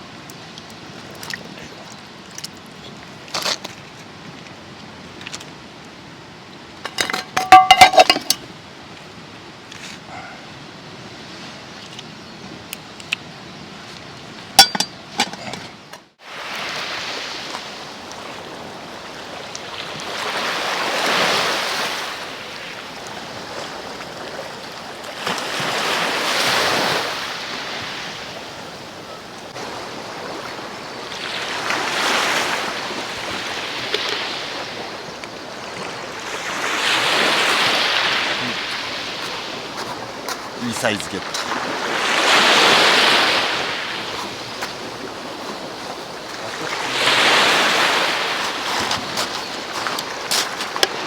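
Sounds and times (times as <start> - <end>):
sea waves washing onto shore: 16.2 - 51.0.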